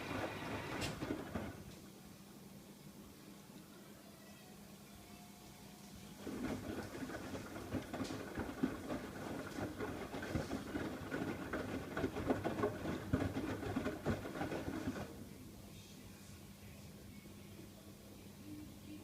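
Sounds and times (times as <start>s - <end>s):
washing machine drum turning: 0.0s - 1.7s, 6.2s - 15.1s
wet laundry tumbling and splashing: 6.2s - 15.2s.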